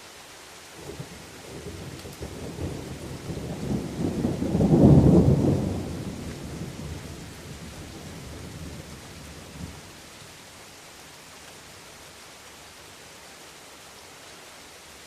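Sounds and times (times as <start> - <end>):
steady rain: 0.0 - 15.0
rolling thunder: 0.9 - 9.9.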